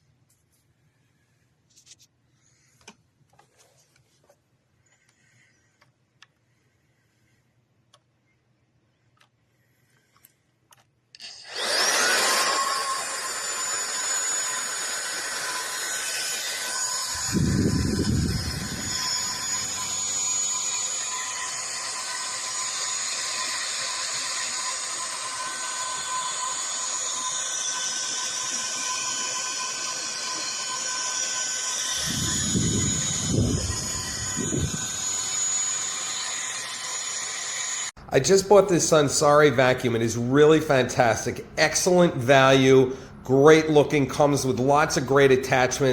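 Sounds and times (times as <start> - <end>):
vacuum motor whining: 11.2 - 38.0.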